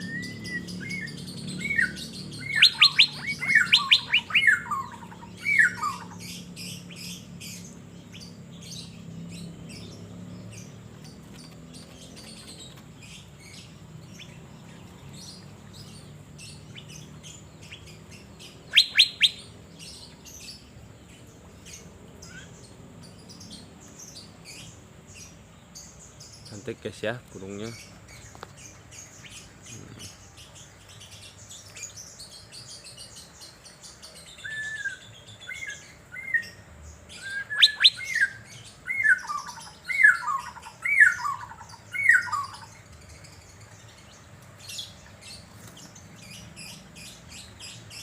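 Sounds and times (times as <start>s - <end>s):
bird whistling loud clear notes: 0.0s - 6.2s, 18.7s - 19.5s, 37.2s - 42.7s
faint bird chirping: 0.0s - 48.0s.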